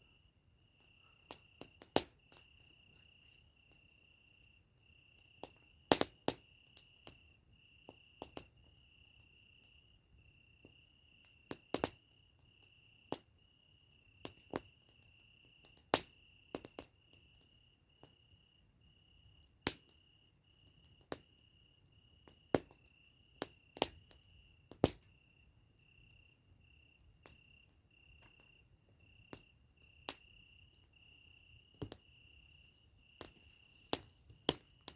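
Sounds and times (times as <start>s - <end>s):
campfire crackling: 0.0s - 34.9s
crickets chirping: 0.0s - 34.9s.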